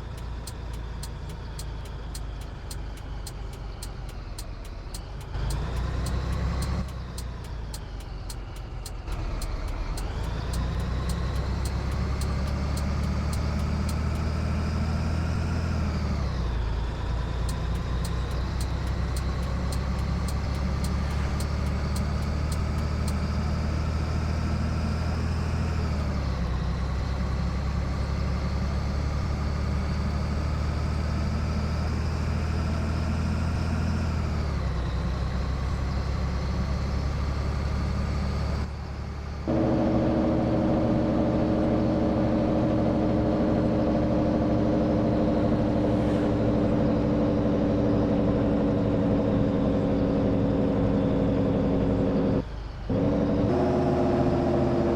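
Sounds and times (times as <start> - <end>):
faint regular ticking: 0.0 - 14.3, 17.4 - 23.3
diesel truck engine accelerating: 0.0 - 54.9.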